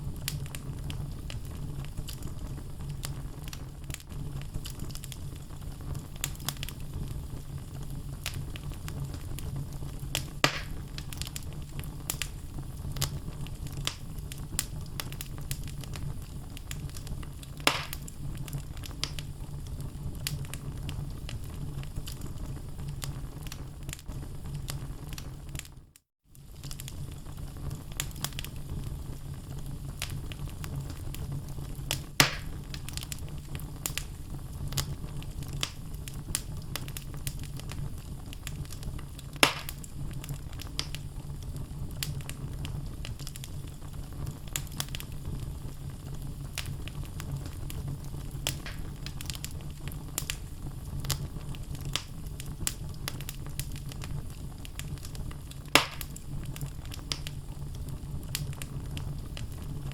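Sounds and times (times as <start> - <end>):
burning logs crackling: 0.0 - 59.9
low rumble of flames: 0.0 - 59.9
loud sharp fire pops: 8.2 - 19.3, 29.9 - 41.1, 46.5 - 59.9.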